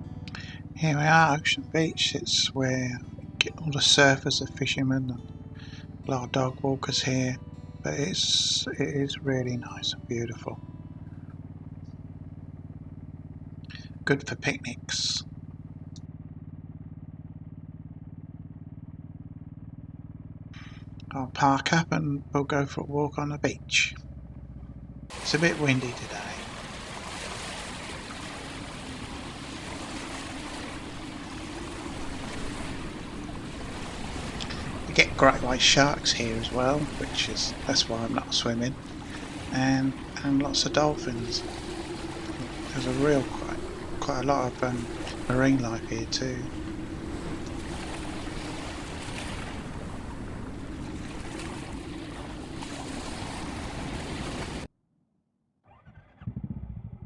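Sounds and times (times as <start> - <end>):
surf washing onto beach: 0.0 - 10.6, 13.7 - 15.2, 25.1 - 54.7
wind rushing over microphone: 27.9 - 54.7.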